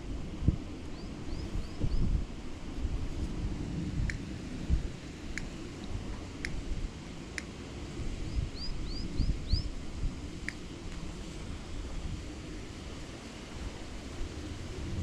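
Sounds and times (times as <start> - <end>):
wind buffeting microphone: 0.0 - 15.0
small bird chirping: 8.2 - 9.7.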